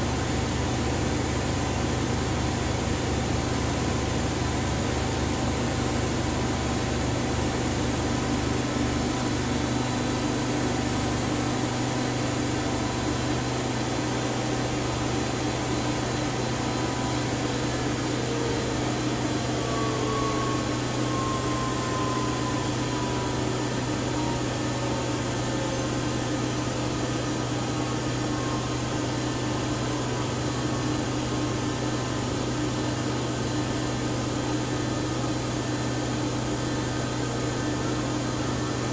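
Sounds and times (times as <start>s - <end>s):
washing machine motor hum: 0.0s - 38.9s
faint high tone sliding downward: 15.1s - 30.8s.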